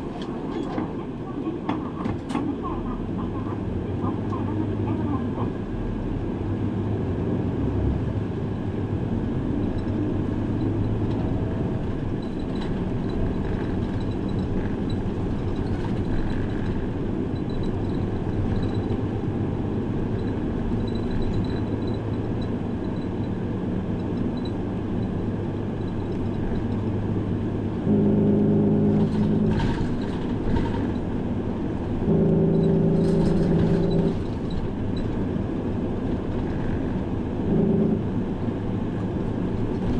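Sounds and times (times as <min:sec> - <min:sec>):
bus engine and road rumble: 0:00.0 - 0:39.9
loud steady tones: 0:27.8 - 0:30.0, 0:31.9 - 0:34.5, 0:37.4 - 0:38.2.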